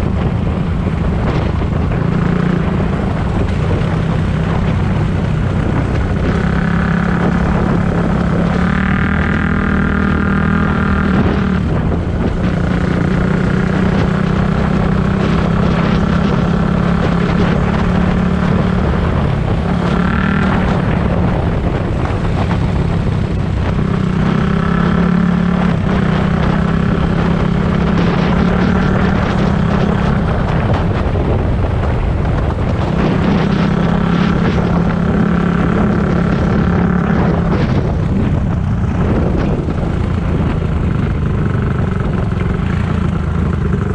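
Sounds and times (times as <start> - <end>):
dirt bike engine revving: 6.2 - 22.5, 23.6 - 30.8.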